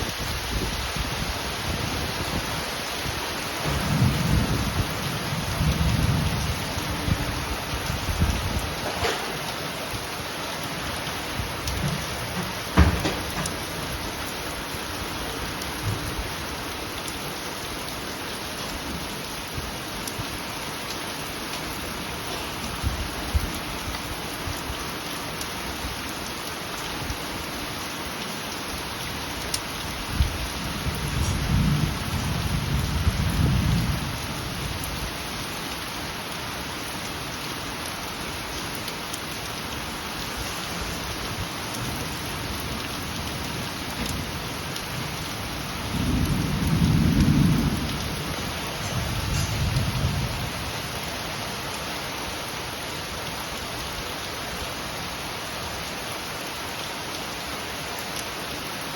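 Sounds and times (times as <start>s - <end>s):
steady rain falling: 0.0s - 58.9s
heavy raindrops knocking: 0.1s - 16.7s, 38.9s - 51.1s
low rumble of thunder: 3.5s - 10.1s, 11.0s - 14.1s, 30.0s - 35.1s, 42.6s - 51.1s.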